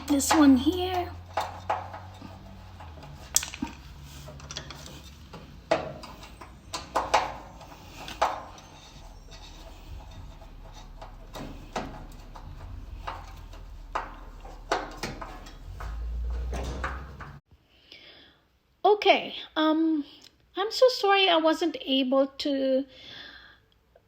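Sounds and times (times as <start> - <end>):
metal clinks of screwdriver and parts: 0.0 - 11.8.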